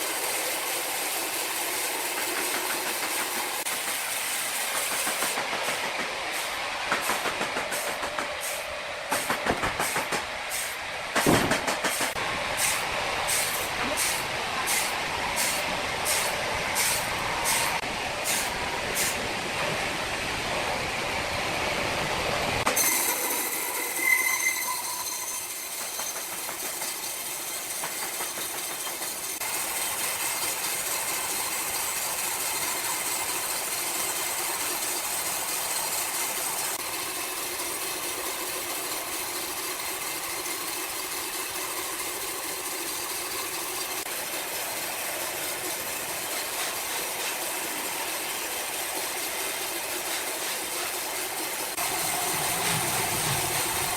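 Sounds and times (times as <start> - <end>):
sawmill machinery running: 0.0 - 53.9
high squeal: 22.8 - 26.3.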